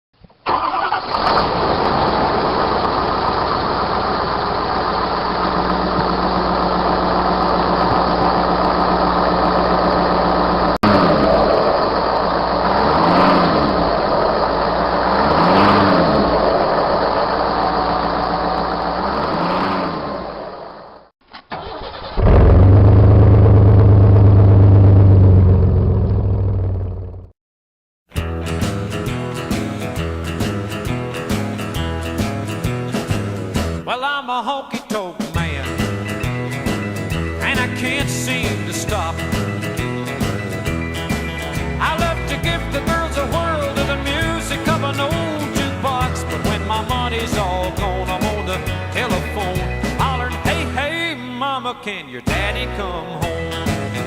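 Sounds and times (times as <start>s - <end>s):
loud deep truck engine: 0.5s - 21.1s, 22.0s - 27.3s, 28.3s - 33.8s, 35.6s - 50.8s
truck engine running: 0.5s - 21.1s, 21.7s - 27.3s, 28.2s - 33.8s, 35.4s - 50.9s
truck engine revving: 0.5s - 27.3s, 35.6s - 50.8s.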